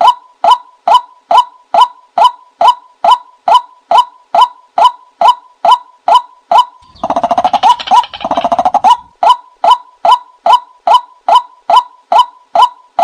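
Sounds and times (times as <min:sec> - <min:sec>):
bird fast rattling call: 0:06.8 - 0:09.1.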